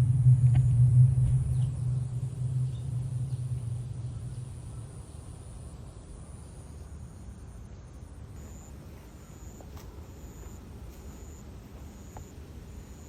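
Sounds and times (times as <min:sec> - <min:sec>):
passing car rumble: 0:00.0 - 0:06.0.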